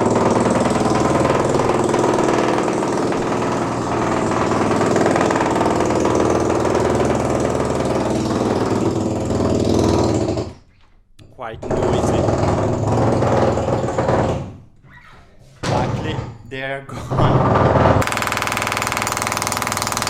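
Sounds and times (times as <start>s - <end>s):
demolition machinery engine: 0.0s - 10.6s, 11.6s - 14.3s.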